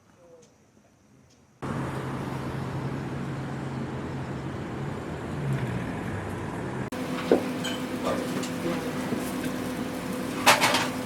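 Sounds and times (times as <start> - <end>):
motor vehicle running: 1.6 - 7.0.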